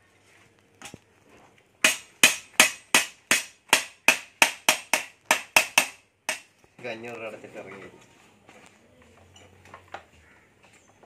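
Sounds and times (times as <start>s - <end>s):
hammer striking metal: 1.8s - 6.5s.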